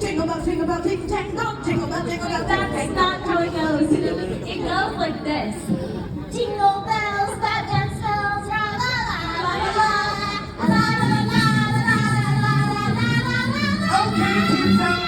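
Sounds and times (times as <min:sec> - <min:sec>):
voices singing long sliding notes: 0:06.9 - 0:15.0
music: 0:09.9 - 0:15.0.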